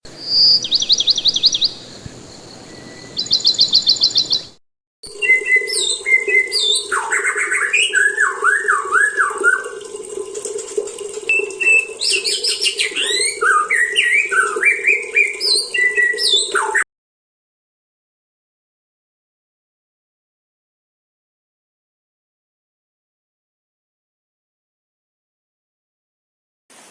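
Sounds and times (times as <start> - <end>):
bird singing whistles and chatter: 0.1 - 9.7, 11.3 - 16.8.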